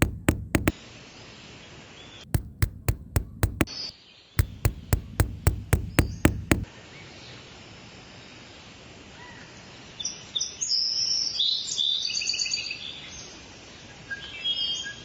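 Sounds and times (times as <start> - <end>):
sharp knocks: 0.0 - 0.7, 2.4 - 3.7, 4.4 - 6.7.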